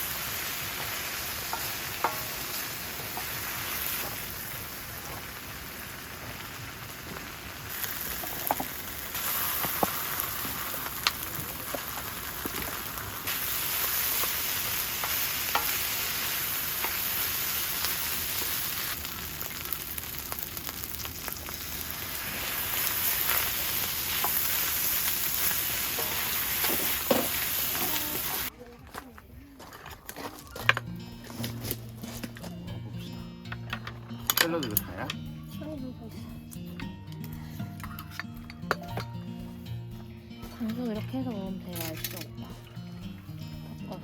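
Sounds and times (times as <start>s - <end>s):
rice sizzling in a pan: 0.0s - 28.5s.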